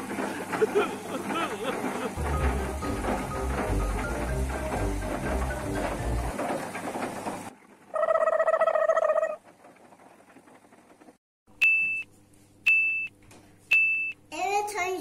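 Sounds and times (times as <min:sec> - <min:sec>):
background music: 0:02.2 - 0:06.4.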